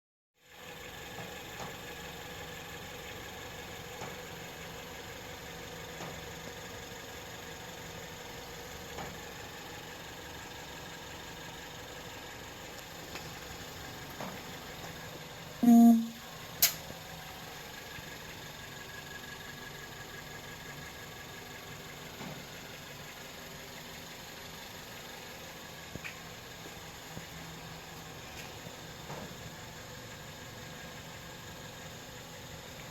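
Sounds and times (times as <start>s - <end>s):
car mechanical hum: 0.5s - 32.9s
sharp click: 16.0s - 16.8s.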